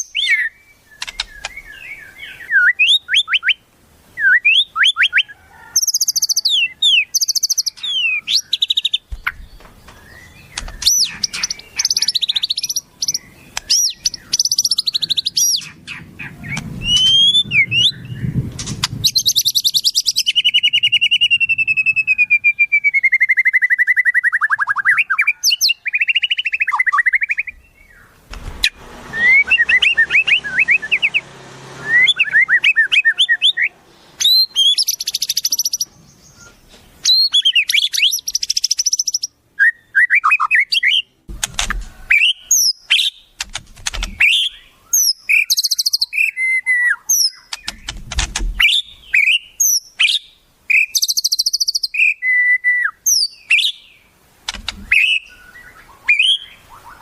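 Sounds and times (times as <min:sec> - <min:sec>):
songbirds singing: 0:00.0 - 0:57.0
dull low thumps: 0:47.7 - 0:48.7.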